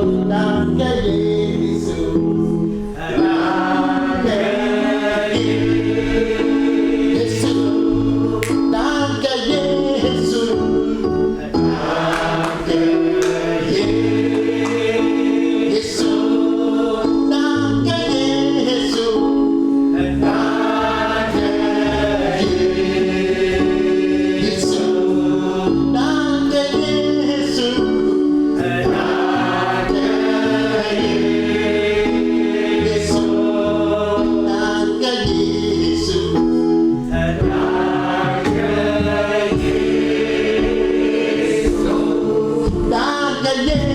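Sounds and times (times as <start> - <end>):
gospel choir singing: 0.0 - 43.9
held chords and bass line: 0.0 - 43.9.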